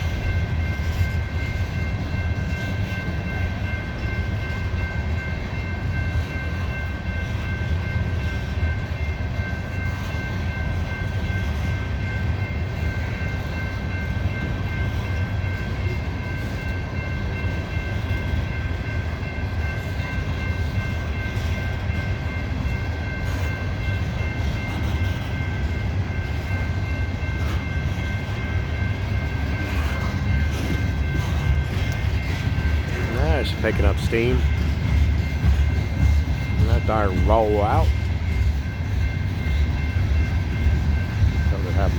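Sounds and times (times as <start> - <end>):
freight train rumbling: 0.0 - 41.9.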